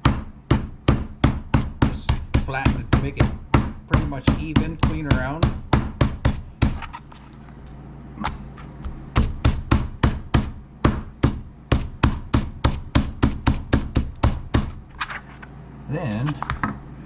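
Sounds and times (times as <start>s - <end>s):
meat mallet pounding meat: 0.0s - 6.9s, 8.3s - 14.8s.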